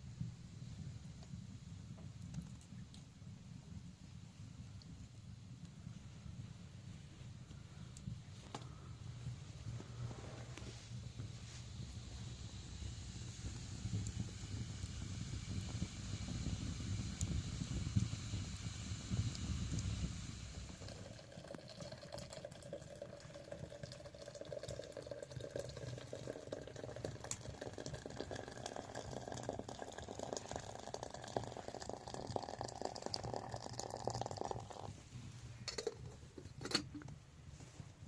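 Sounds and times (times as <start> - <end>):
water pouring into a container: 12.0 - 34.9.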